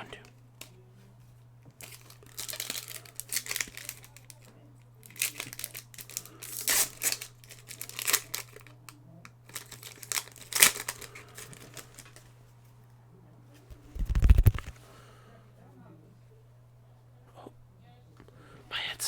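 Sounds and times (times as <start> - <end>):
foil wrapper crinkling and tearing: 1.8 - 8.8, 9.4 - 12.3, 13.7 - 14.8.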